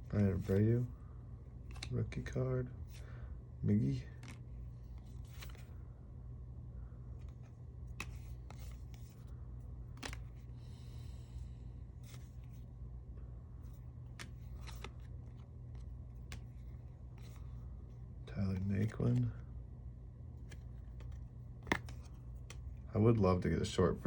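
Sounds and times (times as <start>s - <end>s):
low hum: 0.0s - 24.0s
cards clicking: 1.6s - 2.4s, 3.8s - 5.7s, 7.2s - 11.3s, 13.7s - 17.7s, 20.4s - 22.8s.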